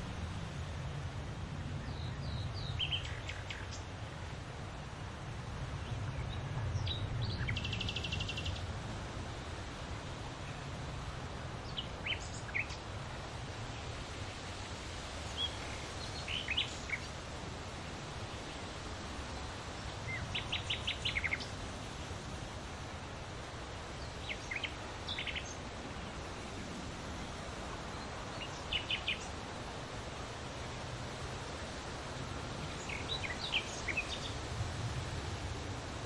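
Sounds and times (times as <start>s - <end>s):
low background noise: 0.0s - 36.0s
small birds chirping: 15.2s - 17.2s, 19.7s - 21.6s, 24.0s - 26.6s, 27.9s - 29.5s, 32.6s - 34.5s.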